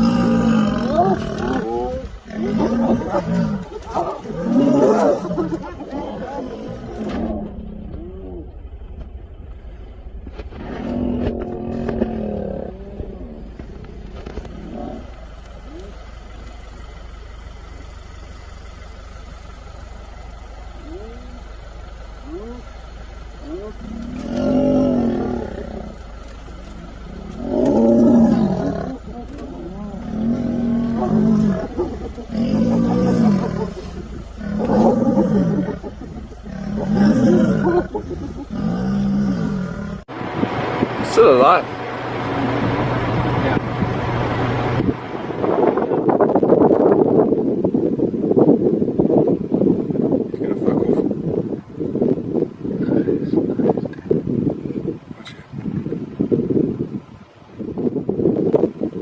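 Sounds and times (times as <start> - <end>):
lion roaring: 0.0 - 9.0, 10.5 - 16.0, 23.4 - 40.1
vehicle engine idling: 0.0 - 58.0
animal calls: 23.4 - 40.0.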